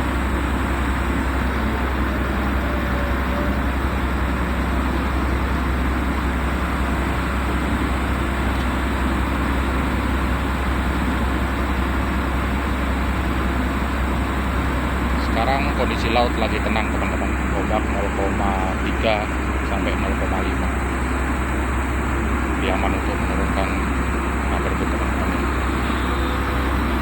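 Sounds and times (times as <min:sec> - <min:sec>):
ship machinery droning: 0:00.0 - 0:27.0.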